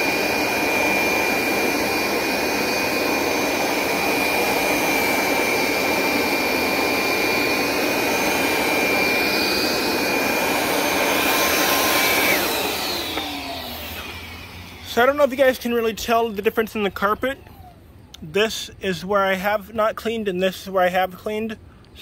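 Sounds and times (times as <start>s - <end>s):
motor winding down: 0.0s - 15.4s
carpet cleaner motor whining: 0.0s - 16.5s.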